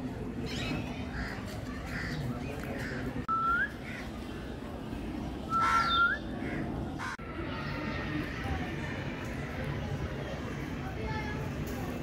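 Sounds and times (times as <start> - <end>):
thin upward-sweeping bird whistles: 3.3 - 3.8
bird chirps: 5.5 - 6.3
harsh bird call: 5.5 - 7.2.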